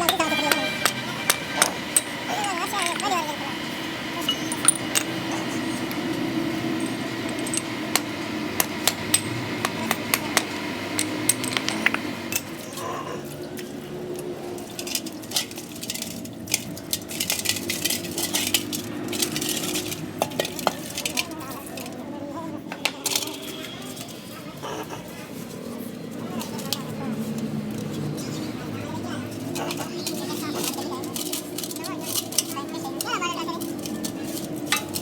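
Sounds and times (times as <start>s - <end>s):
metal tools clinking: 0.0s - 12.7s, 14.6s - 22.0s, 29.2s - 35.0s
low background hum: 0.0s - 35.0s.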